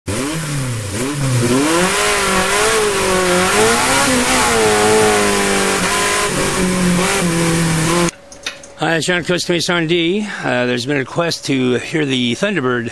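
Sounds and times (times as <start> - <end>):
engine revving: 0.1 - 8.1.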